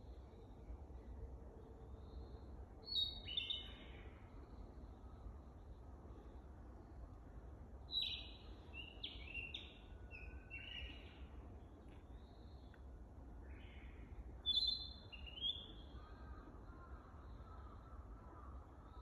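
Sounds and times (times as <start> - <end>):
bird singing whistled notes: 2.8 - 3.8, 7.9 - 11.1, 14.4 - 15.8.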